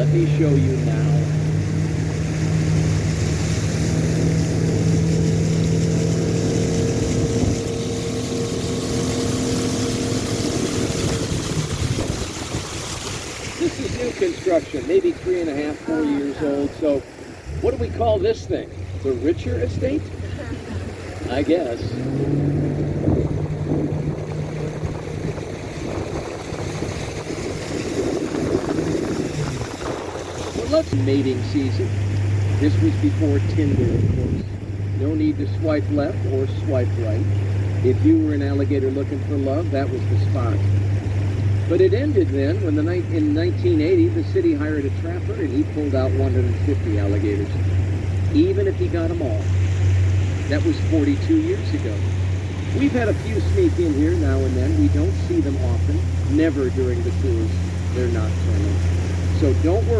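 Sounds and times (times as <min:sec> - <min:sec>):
boat motor humming: 0:00.0 - 0:59.9
water noise: 0:00.0 - 0:59.9
wind: 0:00.0 - 0:59.9
wind noise: 0:01.2 - 0:14.2, 0:19.6 - 0:31.1, 0:31.9 - 0:35.0.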